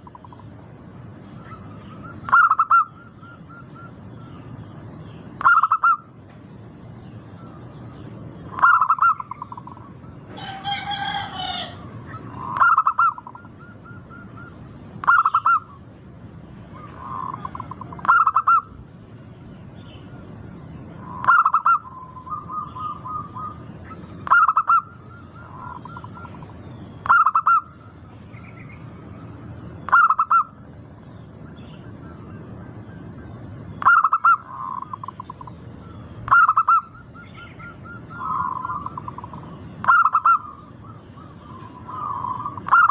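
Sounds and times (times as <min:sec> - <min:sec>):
low background noise: 0:00.0 - 0:42.9
higher bird call: 0:01.3 - 0:04.6, 0:05.4 - 0:06.2, 0:08.5 - 0:15.9, 0:16.7 - 0:18.8, 0:21.0 - 0:28.8, 0:29.8 - 0:30.6, 0:33.8 - 0:42.9
dove cooing: 0:01.4 - 0:04.4, 0:05.4 - 0:06.1, 0:08.5 - 0:15.8, 0:16.7 - 0:18.8, 0:21.0 - 0:27.8, 0:29.9 - 0:30.6, 0:33.8 - 0:42.9.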